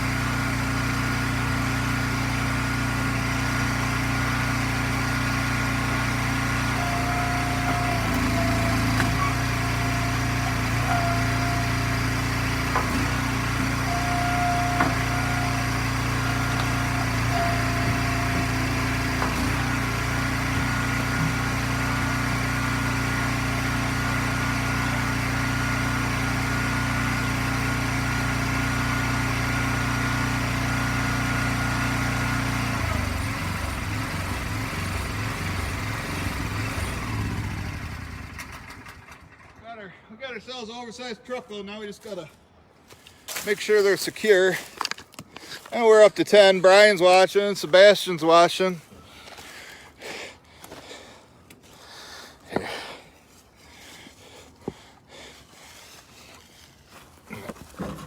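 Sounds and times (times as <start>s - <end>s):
hydraulic whine under load: 0.0s - 39.5s
log splitter engine running: 0.0s - 39.8s, 42.8s - 58.0s
wood splitting knocks: 7.6s - 11.8s, 12.6s - 22.1s.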